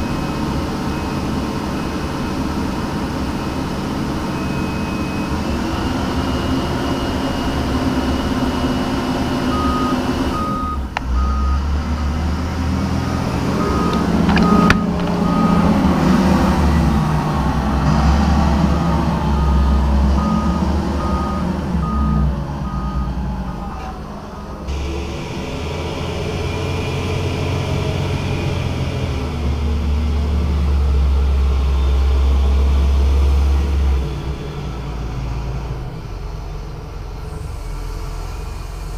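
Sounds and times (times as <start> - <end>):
reversing alarm beeping: 0.0 - 11.8, 12.9 - 24.8
heavy diesel machinery running: 0.0 - 38.9.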